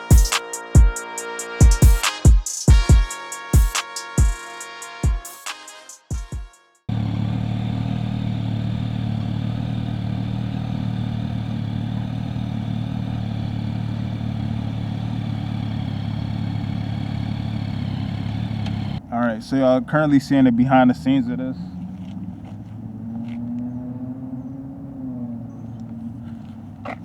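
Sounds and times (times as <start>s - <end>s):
music with booming bass drum: 0.0s - 1.0s, 1.6s - 4.4s, 5.0s - 6.6s
motorcycle engine idling: 6.9s - 23.8s, 24.4s - 27.0s.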